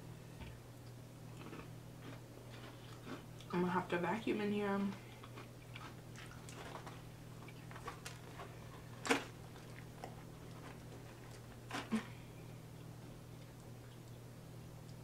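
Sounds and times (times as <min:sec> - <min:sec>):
low steady hum: 0:00.0 - 0:15.0
person chewing: 0:01.3 - 0:03.5, 0:04.9 - 0:12.0.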